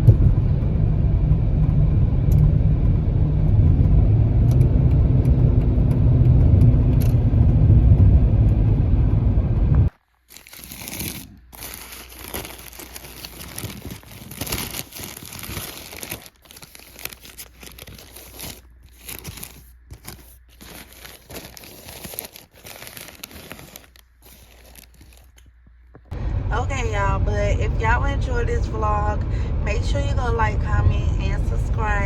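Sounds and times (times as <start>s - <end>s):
food wrapping crinkling and tearing: 9.9s - 25.6s.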